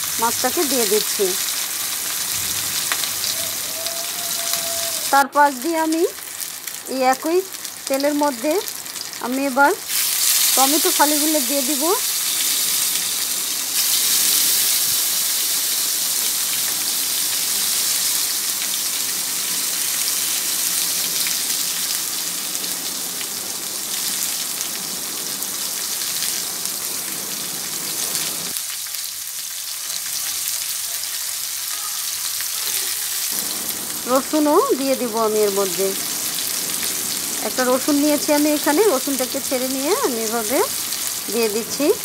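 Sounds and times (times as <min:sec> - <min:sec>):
fish sizzling in oil: 0:00.0 - 0:42.0.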